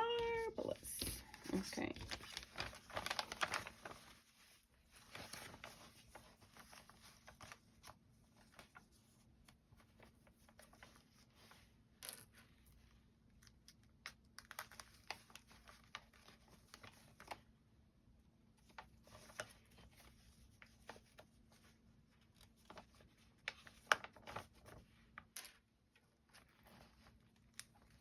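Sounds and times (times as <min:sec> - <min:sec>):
paper and fabric rustling: 0:00.0 - 0:11.8, 0:18.6 - 0:28.0.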